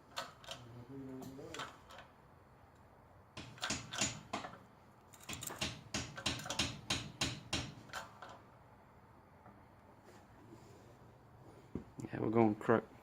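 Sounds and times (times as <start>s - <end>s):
shop press sharp metallic clicks: 3.4s - 8.4s.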